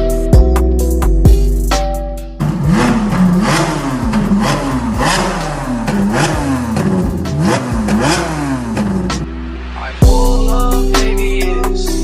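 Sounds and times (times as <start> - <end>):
car engine revving: 2.4 - 10.0.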